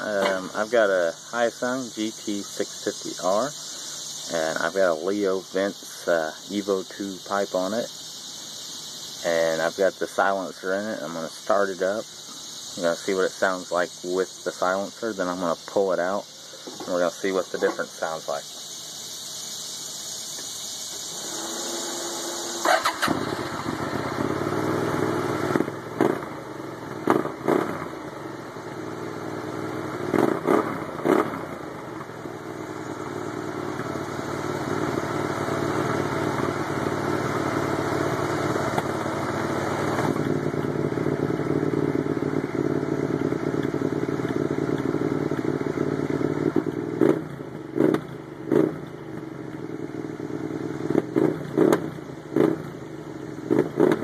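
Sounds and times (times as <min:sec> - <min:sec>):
motorcycle throttle revs: 0:00.0 - 0:09.8, 0:11.4 - 0:54.0
motorcycle engine idling: 0:00.0 - 0:54.0
motorcycle starter cranking: 0:19.7 - 0:26.3.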